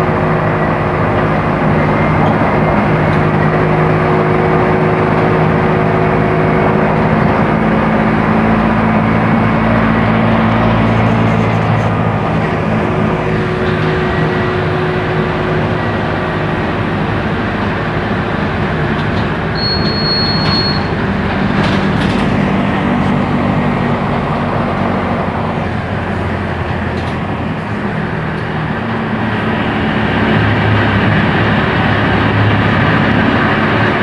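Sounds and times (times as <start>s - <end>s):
bus diesel engine running: 0.0s - 34.0s
short high beep: 19.6s - 20.9s.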